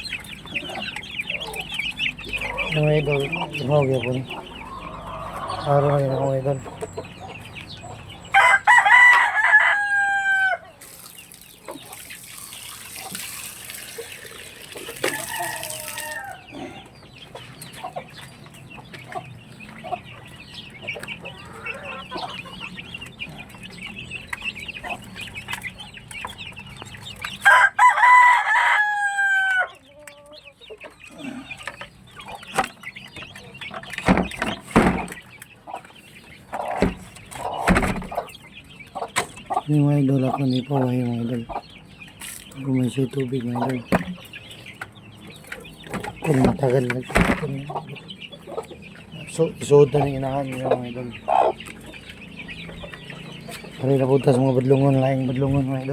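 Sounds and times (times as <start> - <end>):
hens clucking: 0.0 - 55.9
rooster crowing: 8.3 - 10.8, 15.0 - 16.8, 27.4 - 29.9
dull knocks: 34.0 - 35.2, 36.8 - 38.2, 45.9 - 47.5.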